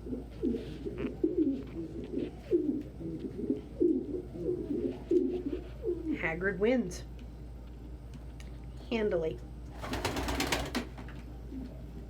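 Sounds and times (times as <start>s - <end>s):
pigeons cooing: 0.0s - 6.2s.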